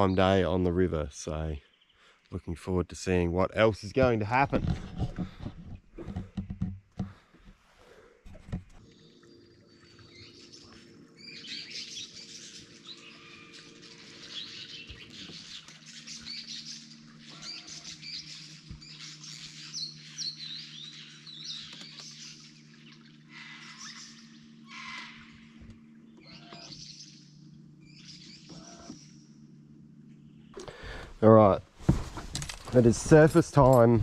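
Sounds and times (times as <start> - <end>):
birds chirping and calling: 0.0 - 2.3, 8.9 - 31.0
birds twittering: 0.0 - 31.6
faint low hum: 0.0 - 34.0.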